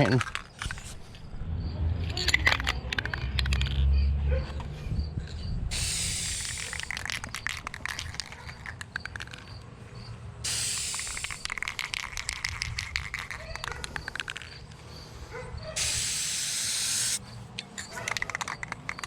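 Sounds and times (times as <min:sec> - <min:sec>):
spray can rattling when shaken: 0:05.7 - 0:09.6, 0:10.4 - 0:14.6, 0:15.8 - 0:17.2.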